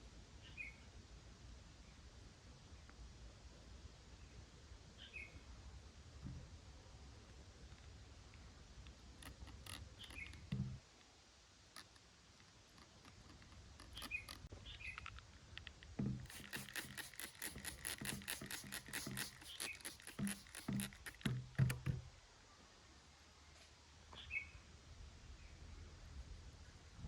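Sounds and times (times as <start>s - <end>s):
soft clicking and patter: 11.7s - 22.0s.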